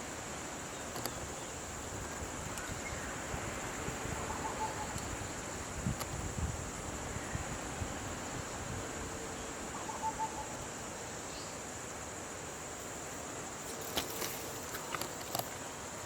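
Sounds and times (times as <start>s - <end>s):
background hiss: 0.0s - 16.0s
sharp clicks: 0.9s - 1.2s.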